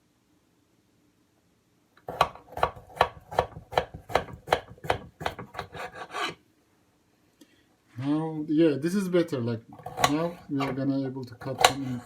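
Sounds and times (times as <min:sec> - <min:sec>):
knife chopping carrots: 0:02.0 - 0:06.4, 0:09.8 - 0:10.8, 0:11.4 - 0:12.0.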